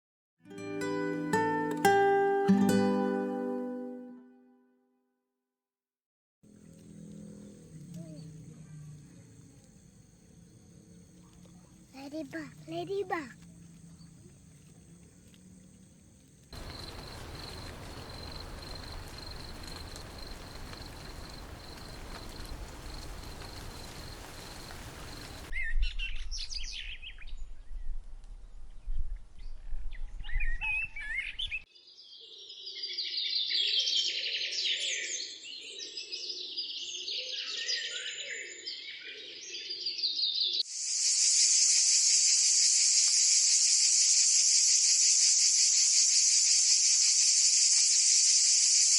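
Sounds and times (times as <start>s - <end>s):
loud high hiss: 16.6s - 25.5s, 40.7s - 48.9s
steady hiss: 16.6s - 25.5s, 40.7s - 48.9s.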